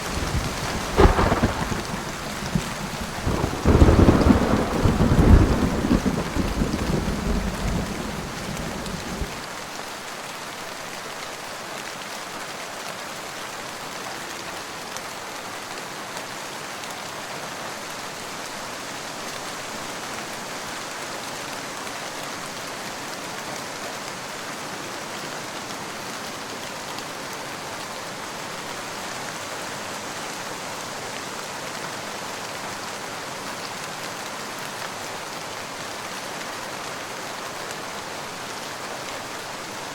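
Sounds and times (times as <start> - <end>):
thunder rumble: 0.0 - 9.4
steady rain falling: 0.0 - 39.9.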